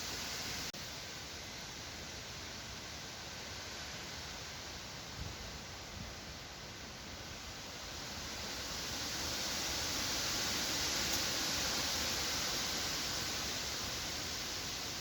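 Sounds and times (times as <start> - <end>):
wind rushing through trees: 0.0 - 15.0.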